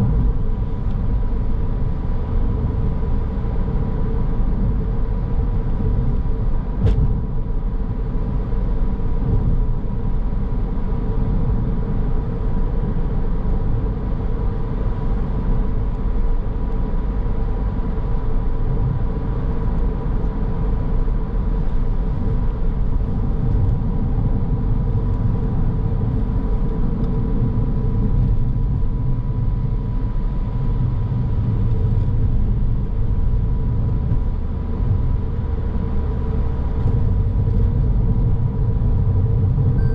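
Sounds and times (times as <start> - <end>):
faint whine: 39.5 - 39.9.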